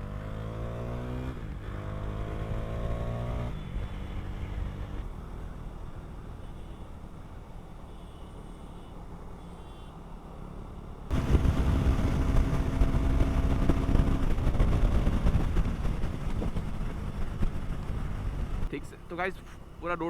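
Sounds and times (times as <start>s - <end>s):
motorcycle engine: 0.0s - 10.2s, 11.0s - 19.9s
wind rush: 11.1s - 18.7s.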